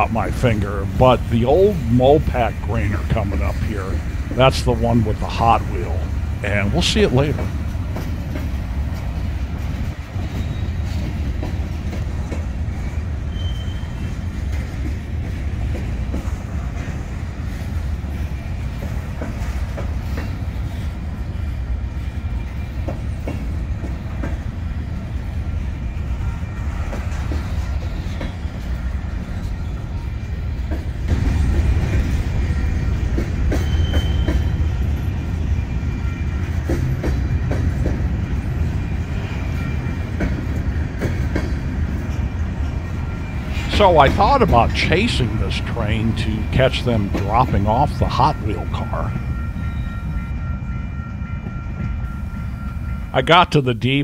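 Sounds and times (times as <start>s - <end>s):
freight train rumbling past: 0.0s - 54.0s
wheels clicking over rails: 0.3s - 25.4s
high wheel squeals: 10.1s - 11.2s, 12.9s - 14.4s, 32.6s - 37.8s, 48.5s - 53.1s.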